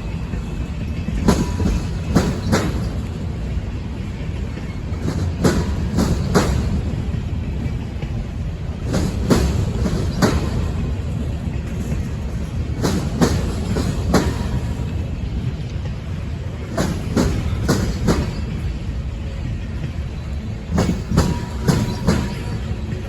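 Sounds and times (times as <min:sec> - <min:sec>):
railroad cars rumbling past: 0:00.0 - 0:23.0
train wheels clacking over rail joints: 0:00.3 - 0:03.4, 0:04.1 - 0:18.9, 0:19.8 - 0:23.0.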